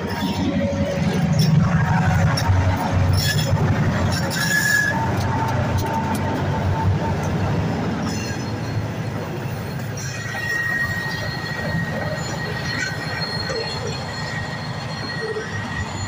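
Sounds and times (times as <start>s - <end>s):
freight car wheels rumbling: 0.0s - 14.2s
thin wheel squeal: 3.1s - 5.5s, 9.6s - 16.0s.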